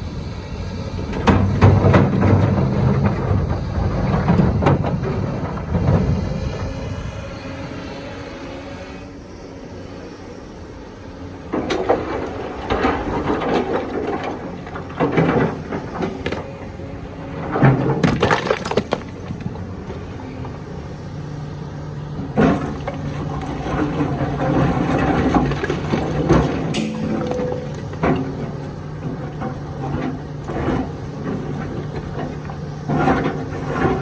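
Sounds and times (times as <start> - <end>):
diesel engine hum: 0.0 - 34.0
excavator bucket scraping stone: 11.6 - 19.5, 22.3 - 34.0.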